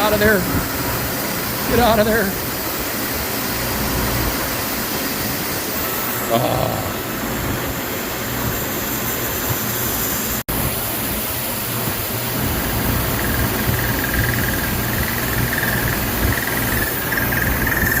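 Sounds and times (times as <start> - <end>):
milling machine hiss and hum: 0.0 - 18.0
high pulsing squeal of end mill: 12.8 - 18.0.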